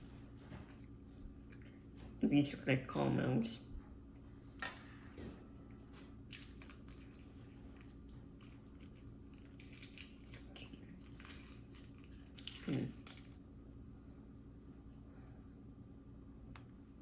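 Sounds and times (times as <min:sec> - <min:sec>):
low steady hum: 0:00.0 - 0:17.0
candy chewing clicks and smacks: 0:05.9 - 0:13.4.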